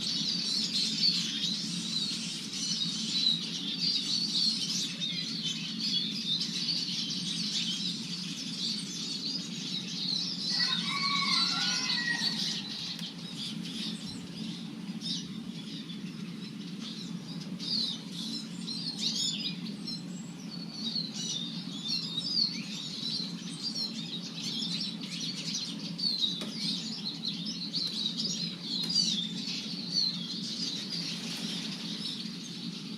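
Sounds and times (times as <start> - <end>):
birds chirping and twittering: 0.0 - 32.9
lower bird call: 10.5 - 32.9
steady low hum: 12.2 - 32.9.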